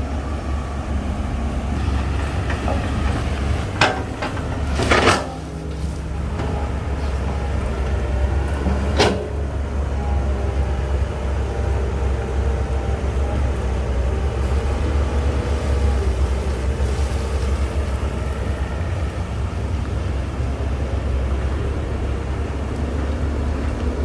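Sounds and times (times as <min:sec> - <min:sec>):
diesel machinery rumbling: 0:00.0 - 0:24.0
metal clank: 0:01.8 - 0:06.6.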